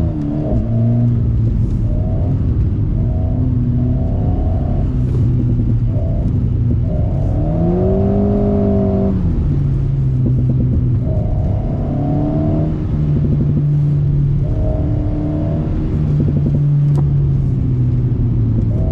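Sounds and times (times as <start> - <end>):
car engine revving: 0.0 - 18.9.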